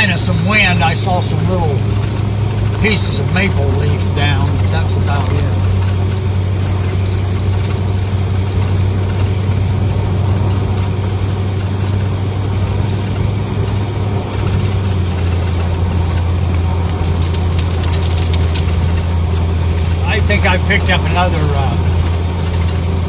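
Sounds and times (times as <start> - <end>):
vehicle engine humming: 0.0 - 23.0
light ticks: 11.9 - 23.0.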